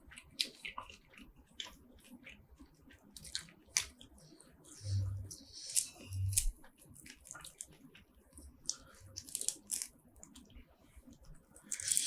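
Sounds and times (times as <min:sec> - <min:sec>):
seafood shells cracking and tearing: 0:03.1 - 0:04.3, 0:05.6 - 0:10.6, 0:11.6 - 0:12.0.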